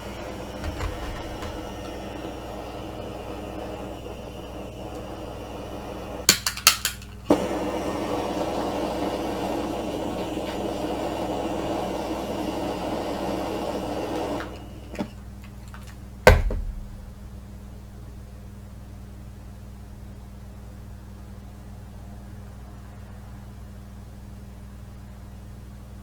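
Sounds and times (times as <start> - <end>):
heavy metal knock: 16.3 - 17.5.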